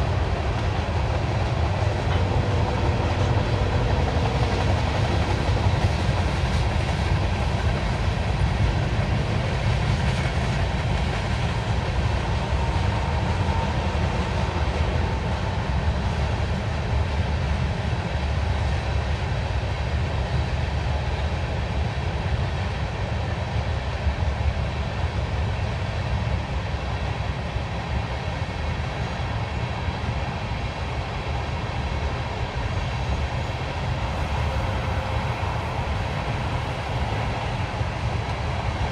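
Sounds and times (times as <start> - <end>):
freight train rumbling on rails: 0.0 - 38.9.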